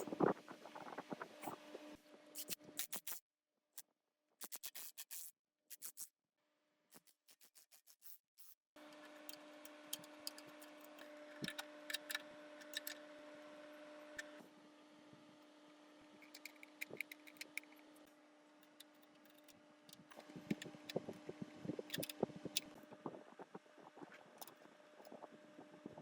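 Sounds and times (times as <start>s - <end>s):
steady hum: 0.0s - 2.7s, 8.8s - 26.0s.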